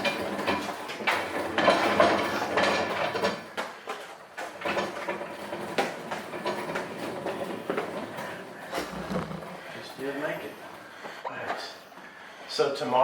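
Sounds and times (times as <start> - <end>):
metallic clattering and knocking: 0.0 - 3.5, 4.4 - 9.7.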